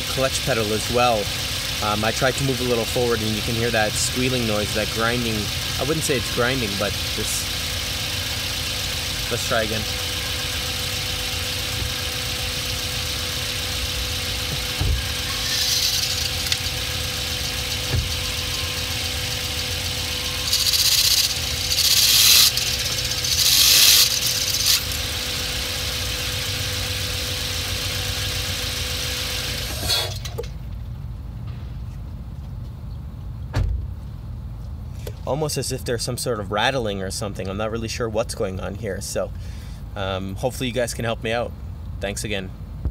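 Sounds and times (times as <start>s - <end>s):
harsh clutch noise bursts: 0.0s - 30.4s
car engine drone: 0.0s - 42.9s
clutch whine: 0.0s - 42.9s.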